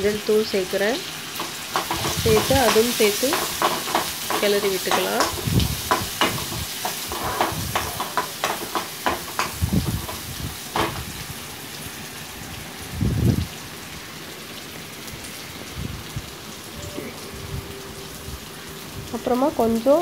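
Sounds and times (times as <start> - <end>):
shallots sizzling in oil: 0.0 - 20.0
steel spoon scraping pan: 1.4 - 10.2.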